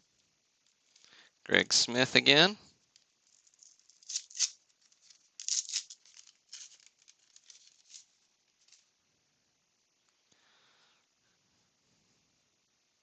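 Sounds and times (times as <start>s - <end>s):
foil wrapper tearing and crinkling: 3.2s - 8.8s.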